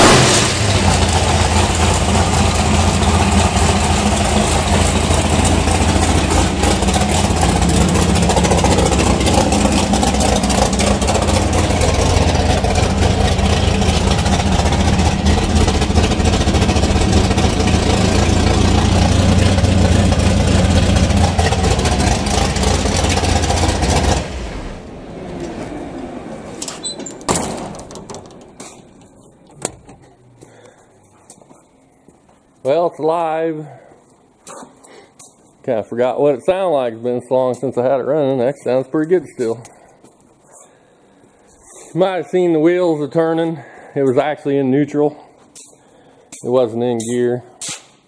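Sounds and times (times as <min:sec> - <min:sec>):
engine idling deep note: 0:00.0 - 0:27.6
clicks and knocks: 0:26.6 - 0:30.2.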